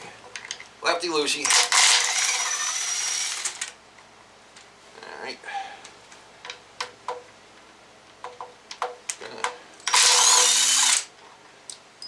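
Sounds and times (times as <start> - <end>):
power tool spinning out bolt: 1.4 - 3.8, 9.9 - 11.1.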